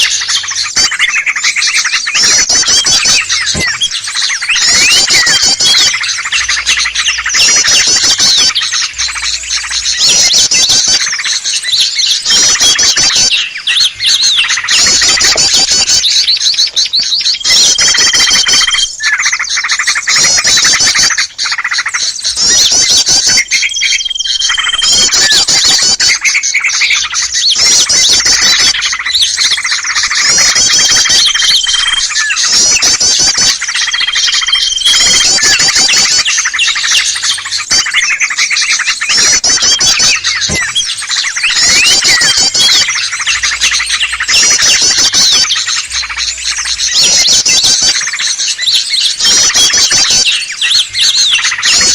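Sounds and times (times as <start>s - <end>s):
small birds chirping and twittering: 0.0s - 51.9s.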